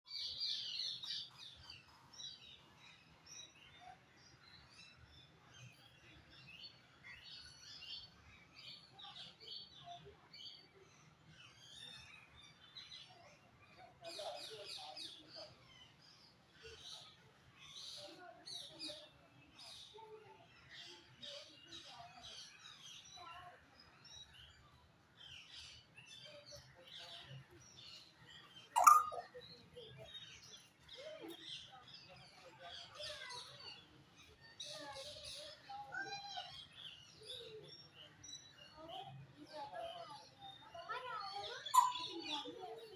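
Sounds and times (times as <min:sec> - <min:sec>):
faint bird chirping: 0:27.0 - 0:30.7, 0:41.3 - 0:42.9.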